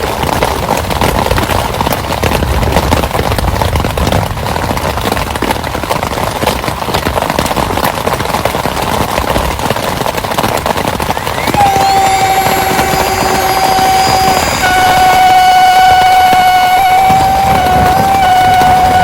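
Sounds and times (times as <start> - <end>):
heavy rain falling: 0.0 - 19.0
steady high whistling tone: 11.1 - 19.0.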